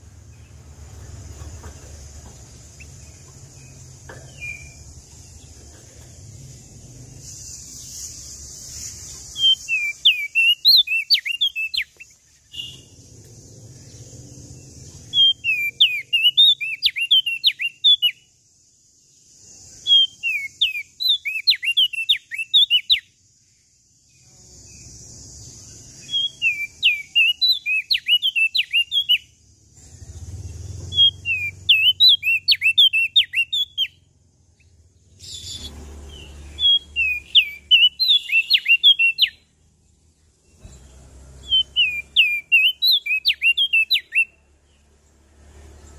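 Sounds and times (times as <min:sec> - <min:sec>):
steady hiss: 0:00.0 - 0:10.1
songbird singing rapid chirps: 0:00.0 - 0:45.9.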